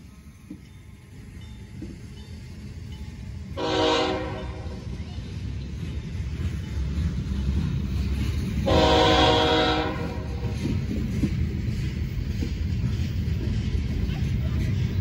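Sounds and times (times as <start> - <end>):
train wheels rumbling on rail: 0.0 - 15.0
train horn blast: 3.6 - 4.9, 8.6 - 10.5.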